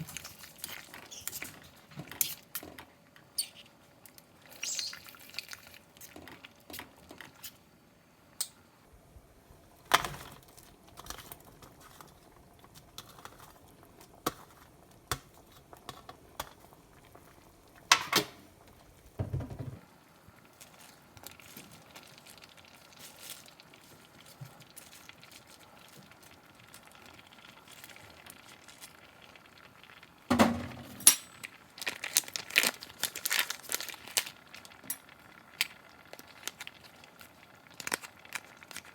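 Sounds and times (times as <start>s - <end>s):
crinkling: 20.4s - 29.4s, 31.4s - 38.9s.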